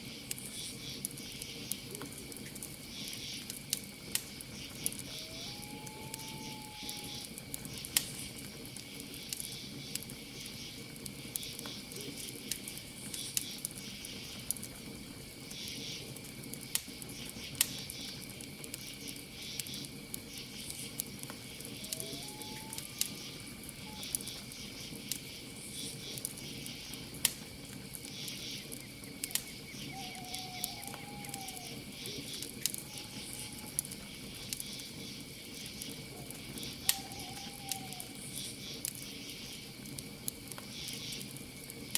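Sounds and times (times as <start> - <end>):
campfire crackling and popping: 0.0 - 41.9
crickets trilling: 0.0 - 41.9
rising and falling bird calls: 4.8 - 7.3, 21.6 - 24.2, 29.1 - 33.8, 36.6 - 38.2.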